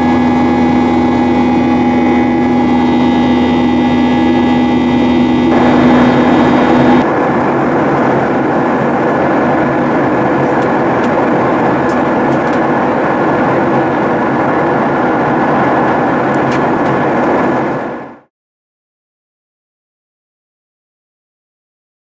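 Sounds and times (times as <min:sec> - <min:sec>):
constant low hum: 0:00.0 - 0:18.2
jet engine and airflow rushing: 0:00.0 - 0:18.3.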